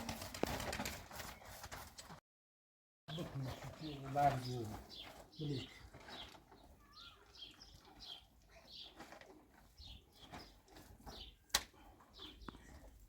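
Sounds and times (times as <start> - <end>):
small birds chirping: 3.1 - 13.0.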